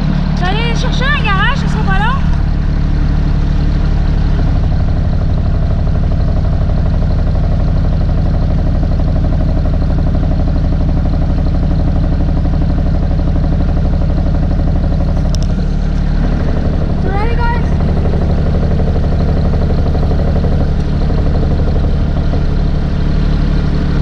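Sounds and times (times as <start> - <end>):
snowblower engine running: 0.0 - 24.0.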